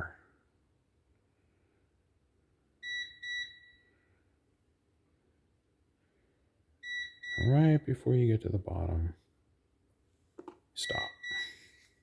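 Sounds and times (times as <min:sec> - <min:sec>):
timer alarm double beep: 0:02.8 - 0:03.8, 0:10.8 - 0:11.6.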